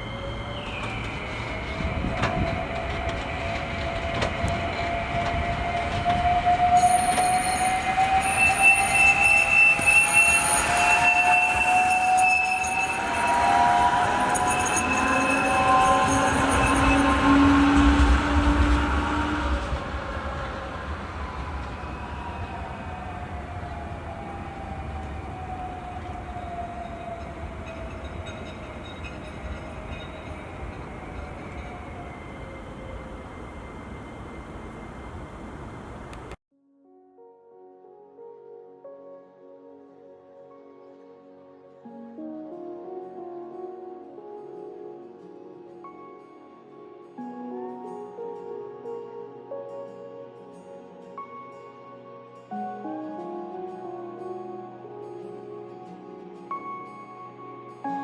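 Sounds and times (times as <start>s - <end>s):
tram whine: 0.0s - 36.4s.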